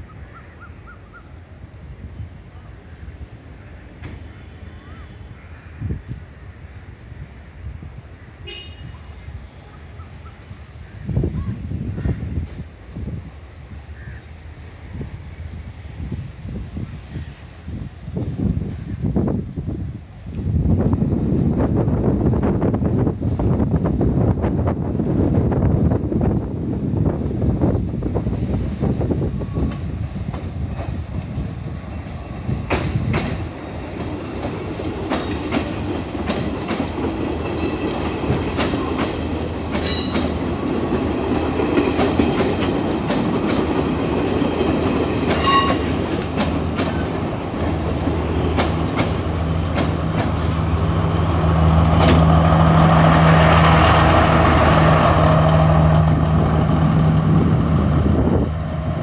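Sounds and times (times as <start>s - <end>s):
train wheels clicking over rail joints: 29.6s - 55.6s.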